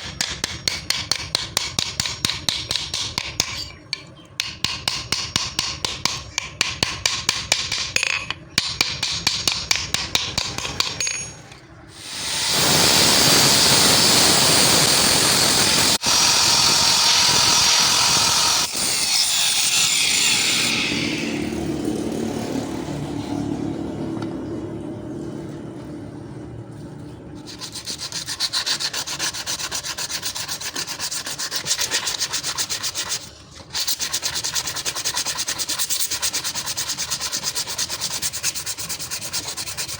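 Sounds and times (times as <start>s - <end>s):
power tool grinding metal: 12.0s - 23.0s.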